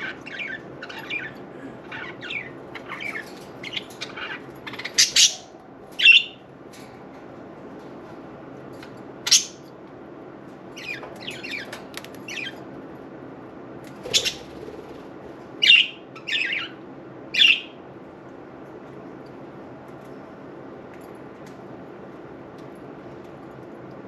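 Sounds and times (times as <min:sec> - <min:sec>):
budgerigars chirping and squawking: 0:00.0 - 0:06.3, 0:09.3 - 0:09.6, 0:14.0 - 0:14.6, 0:15.6 - 0:16.8.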